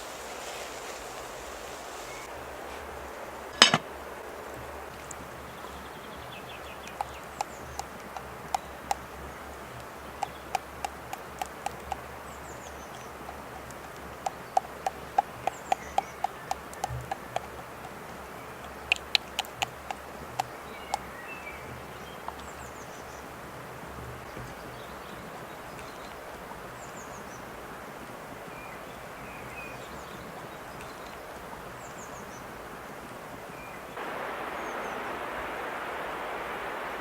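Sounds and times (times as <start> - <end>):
steady background hiss: 0.0 - 37.0
faint bird chirps: 33.6 - 37.0.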